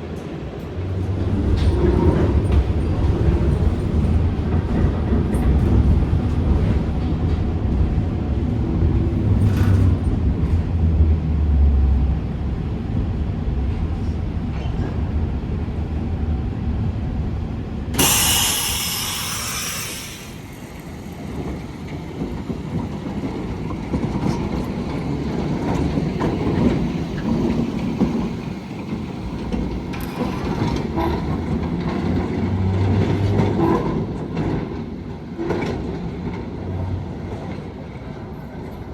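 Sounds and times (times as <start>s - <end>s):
tram rumbling on rails: 0.0s - 38.9s
loud hiss: 18.0s - 21.3s.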